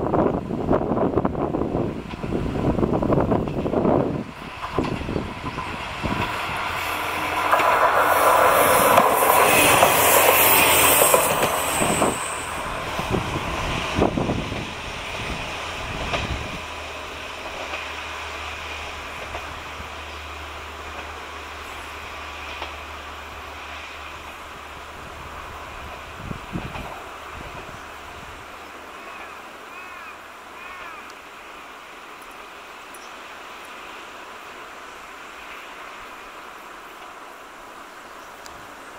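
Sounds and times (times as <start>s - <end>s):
train wheels rushing on rail: 0.0s - 38.9s
clacks over rail joints: 3.2s - 13.2s, 15.9s - 16.6s, 17.4s - 19.8s, 20.8s - 21.3s, 22.4s - 22.9s, 25.8s - 27.8s
high-pitched wheel squeal: 8.1s - 12.6s.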